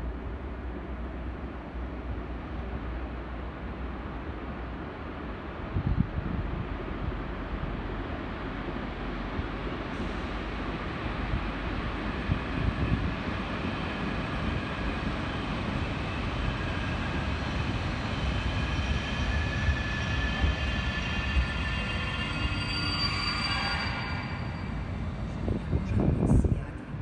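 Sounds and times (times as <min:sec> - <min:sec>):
braking wheels squealing: 0:18.4 - 0:25.0.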